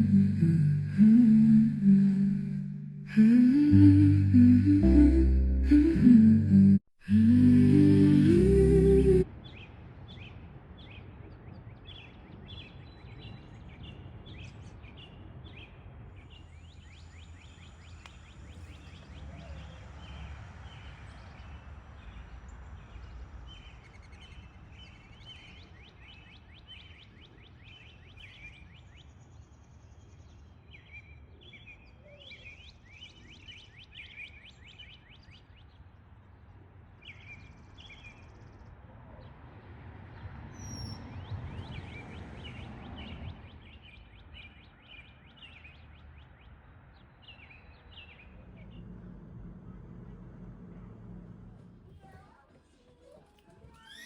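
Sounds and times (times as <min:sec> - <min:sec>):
low steady rumble: 0:00.0 - 0:09.2, 0:48.0 - 0:52.5.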